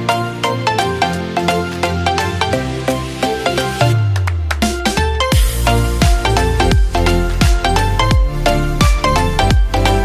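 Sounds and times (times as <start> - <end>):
plucked notes over bass line: 3.5 - 10.0.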